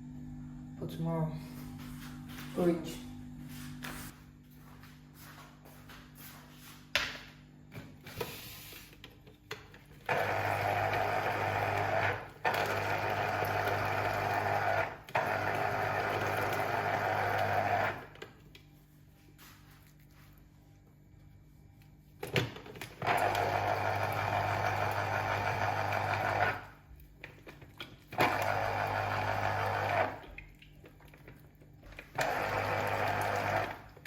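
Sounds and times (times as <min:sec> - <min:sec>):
juicer motor running: 0:10.0 - 0:18.3, 0:22.7 - 0:34.0.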